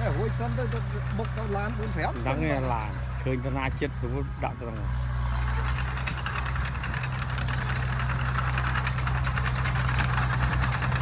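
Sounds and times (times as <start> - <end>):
fast rattling clatter: 5.4 - 11.0.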